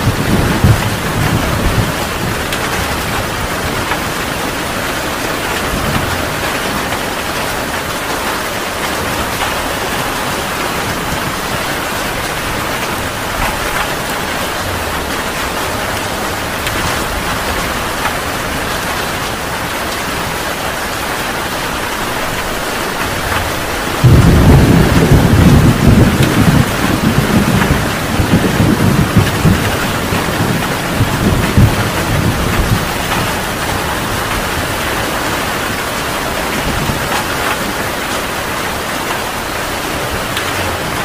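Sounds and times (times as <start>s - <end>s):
loud low thunder rumble: 0.0s - 4.8s, 23.6s - 34.8s
heavy rain falling: 0.0s - 41.0s.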